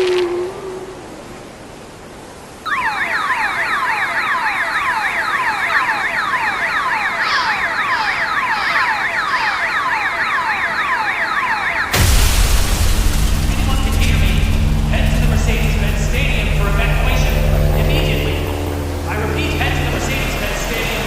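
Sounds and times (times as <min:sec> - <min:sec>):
emergency siren yelping: 0:02.7 - 0:12.0, 0:13.6 - 0:21.0.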